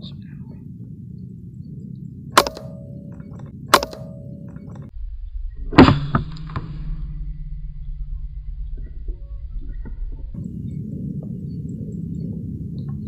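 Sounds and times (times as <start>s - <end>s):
air rifle shots with metallic ring: 2.4s - 4.9s
cluster of knocks: 2.4s - 4.9s.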